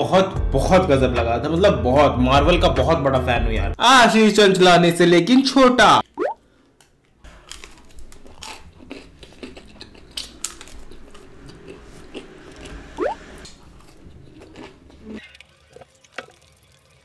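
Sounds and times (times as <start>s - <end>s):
person chewing bread: 6.5s - 12.8s, 13.5s - 16.0s.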